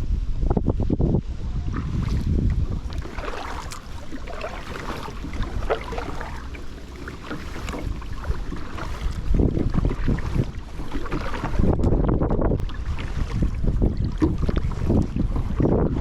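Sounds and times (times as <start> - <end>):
wind rumble on microphone: 0.0 - 16.0
water splashing and trickling: 1.7 - 15.6.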